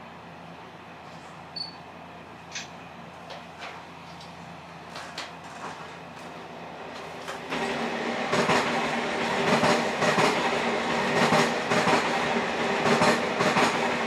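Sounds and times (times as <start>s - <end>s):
train rumble and hiss: 0.0s - 14.0s
train wheels clattering: 7.0s - 14.0s.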